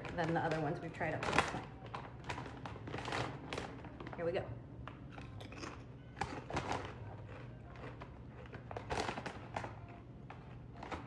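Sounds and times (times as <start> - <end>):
potato chips being chewed: 4.9 - 11.0.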